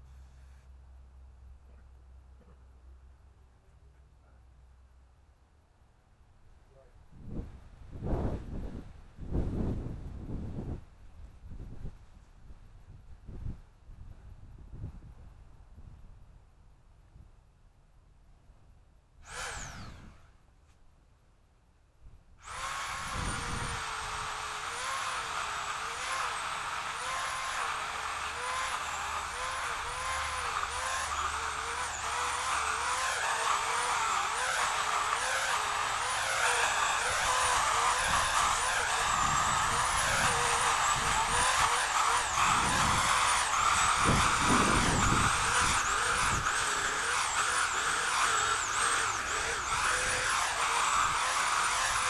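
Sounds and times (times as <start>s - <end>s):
chainsaw cutting: 19.2s - 20.4s, 22.4s - 52.0s.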